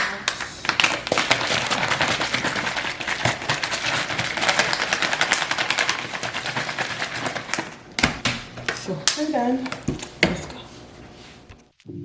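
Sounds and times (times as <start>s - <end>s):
drink bottle shaking clatter: 0.4s - 7.9s.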